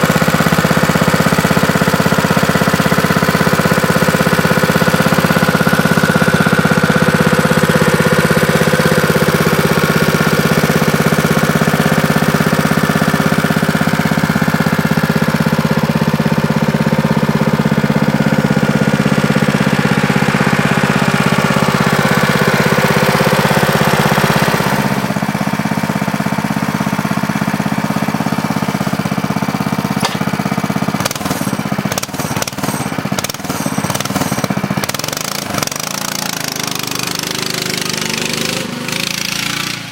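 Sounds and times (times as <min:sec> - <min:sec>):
small engine running: 0:00.0 - 0:39.9
sharp knocks or clicks: 0:30.0 - 0:30.4.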